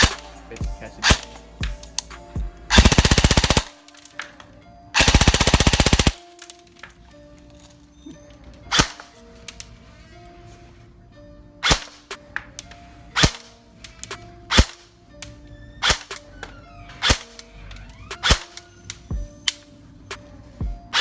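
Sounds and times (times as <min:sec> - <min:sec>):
airsoft rifle shots: 0:00.0 - 0:00.3, 0:01.0 - 0:01.4, 0:02.7 - 0:04.2, 0:05.0 - 0:06.3, 0:08.7 - 0:09.1, 0:11.6 - 0:12.1, 0:13.2 - 0:14.9, 0:15.8 - 0:16.2, 0:17.0 - 0:17.4, 0:18.2 - 0:18.6
background music with synth: 0:00.0 - 0:21.0.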